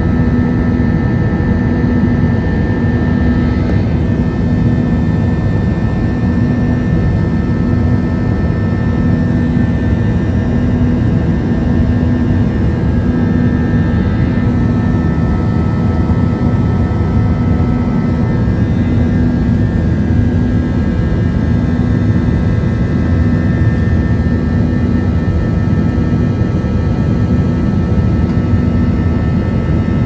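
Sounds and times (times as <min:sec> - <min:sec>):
jet engines rumbling in cabin: 0:00.0 - 0:30.0.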